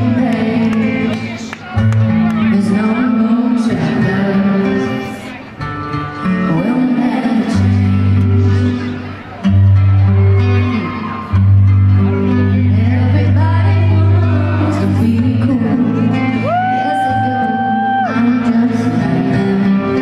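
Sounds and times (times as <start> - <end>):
woman singing: 0.0 - 1.2, 2.4 - 5.2, 6.3 - 8.7, 12.5 - 20.0
live pop ballad: 0.0 - 20.0.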